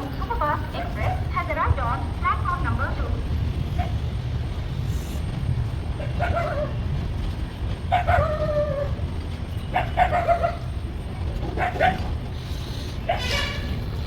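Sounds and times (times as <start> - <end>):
train rumbling: 0.0 - 14.0
dog barking and whining: 6.2 - 6.8, 7.9 - 9.0.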